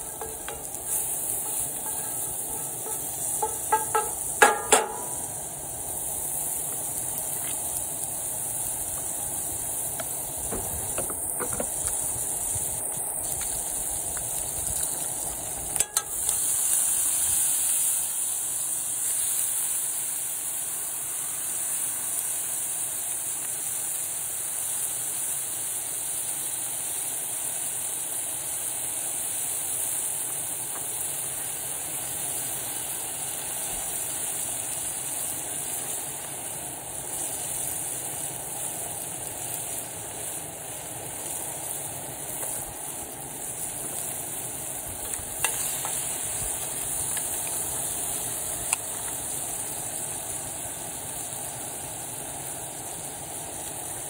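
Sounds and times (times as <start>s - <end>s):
food sizzling in a skillet: 0.0s - 54.0s
sharp knocks: 2.5s - 5.2s.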